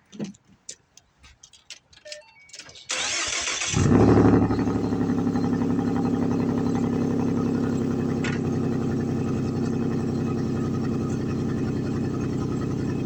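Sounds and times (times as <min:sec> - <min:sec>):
car engine revving and idling: 0:03.6 - 0:13.0.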